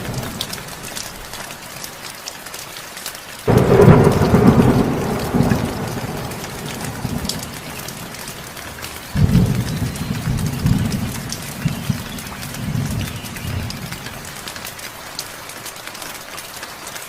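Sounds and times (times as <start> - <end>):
thunder rumbling: 0.0 - 1.3, 3.5 - 14.7
heavy rain: 0.0 - 17.0.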